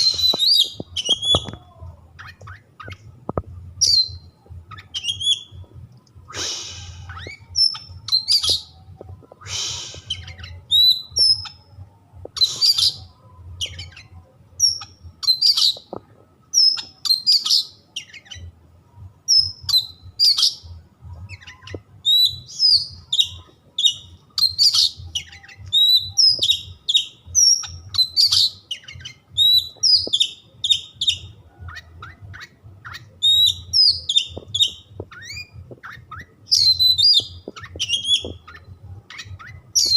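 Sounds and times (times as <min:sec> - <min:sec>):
bird singing whistled phrases: 0:00.0 - 0:01.6, 0:03.8 - 0:05.6, 0:09.4 - 0:11.6, 0:21.3 - 0:39.9.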